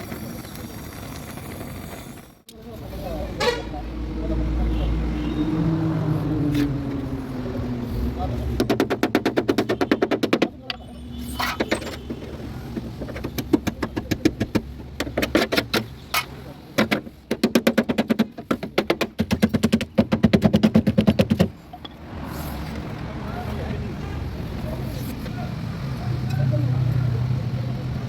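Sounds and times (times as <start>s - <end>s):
power tool hammering rapidly: 8.6s - 10.6s, 12.0s - 15.9s, 16.8s - 21.5s.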